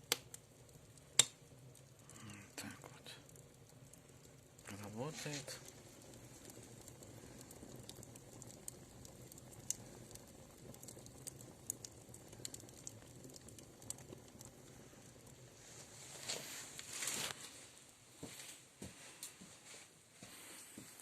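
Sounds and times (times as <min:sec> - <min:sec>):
wood fire crackling: 0:00.0 - 0:21.0
rustling: 0:14.8 - 0:21.0.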